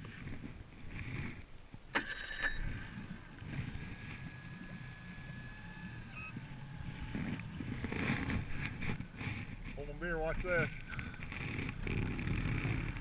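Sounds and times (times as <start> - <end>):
boat motor rumbling: 2.7 - 13.0.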